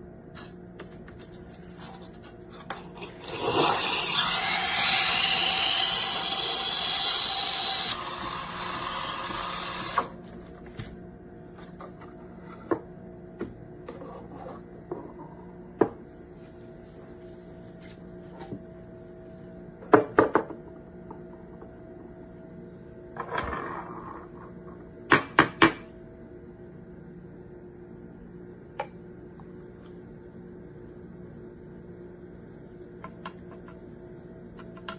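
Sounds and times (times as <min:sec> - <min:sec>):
espresso machine hissing: 0:03.0 - 0:10.2
low steady hum: 0:09.4 - 0:34.9.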